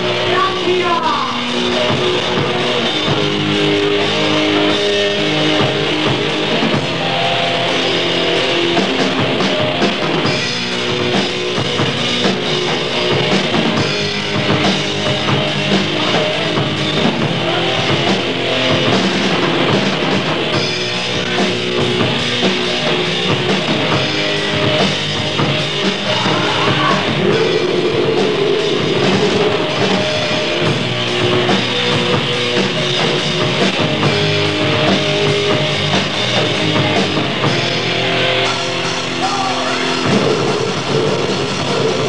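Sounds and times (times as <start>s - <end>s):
distorted grindcore rock music: 0.0s - 42.0s.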